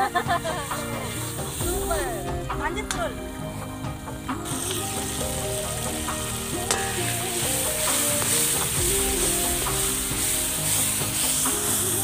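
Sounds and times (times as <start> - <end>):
background music: 0.0 - 12.0
masala sizzling in a pan: 0.2 - 12.0.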